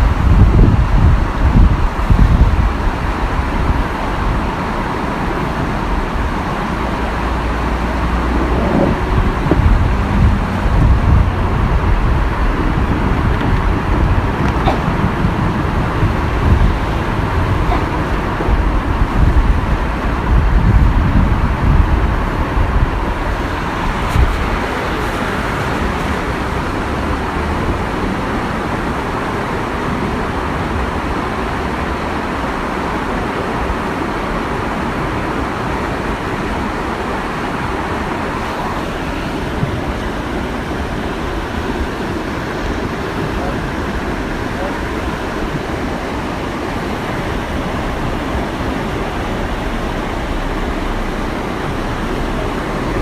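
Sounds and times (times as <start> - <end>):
waterfall rushing: 0.0 - 53.0
wind rumble on microphone: 0.0 - 53.0.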